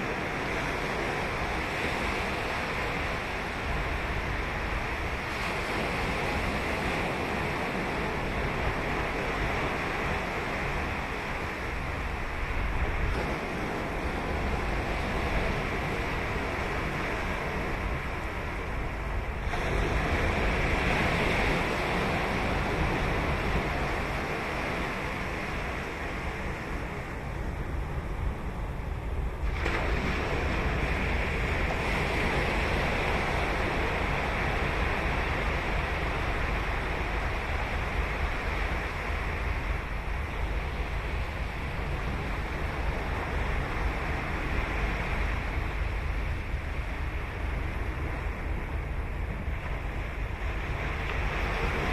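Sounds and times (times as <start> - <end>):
ocean waves washing: 0.0 - 51.9
wave crashing: 19.4 - 51.9.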